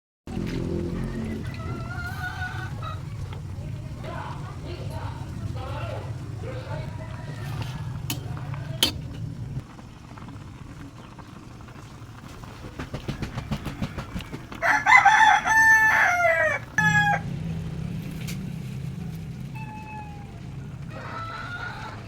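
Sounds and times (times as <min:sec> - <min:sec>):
rooster crowing: 0:00.7 - 0:03.7, 0:13.0 - 0:17.3, 0:20.9 - 0:22.0
quick run of ticks: 0:12.2 - 0:15.0.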